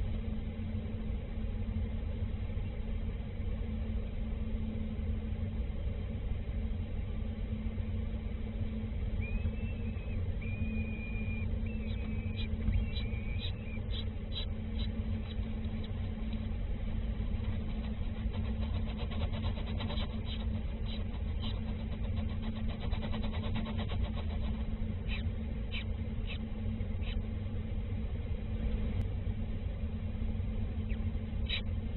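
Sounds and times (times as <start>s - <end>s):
low engine rumble and hum: 0.0s - 31.9s
small birds chirping: 9.2s - 16.5s, 17.3s - 27.3s, 30.8s - 31.8s.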